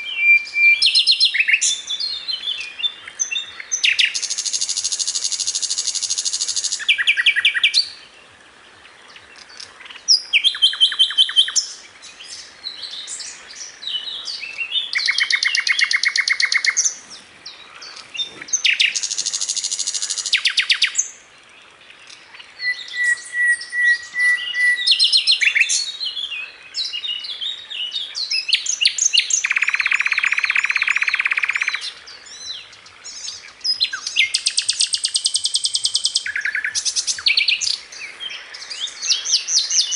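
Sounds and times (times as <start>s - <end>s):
bird chirping: 0.0s - 8.2s, 8.8s - 39.9s
bird whistle: 22.6s - 25.8s.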